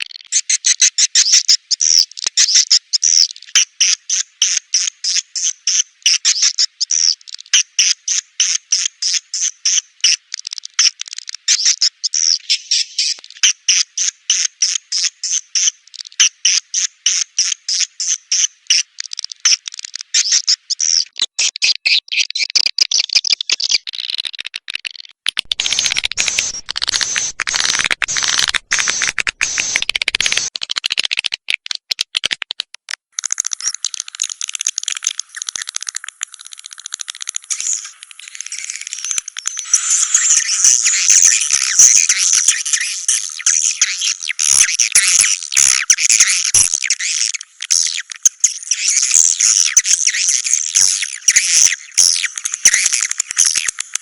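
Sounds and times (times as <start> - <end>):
high twittering bird chirps: 25.4 - 30.5, 37.5 - 53.8
steady high buzz: 25.5 - 30.5.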